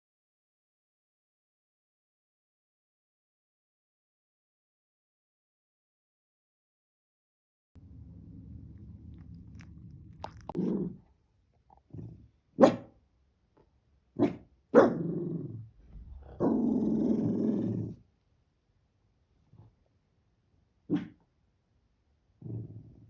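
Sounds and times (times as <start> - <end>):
small dog growling: 8.7 - 11.1, 11.7 - 12.3, 14.2 - 18.0, 22.4 - 23.0
dog barking: 12.6 - 13.0, 14.2 - 15.2, 20.9 - 21.2.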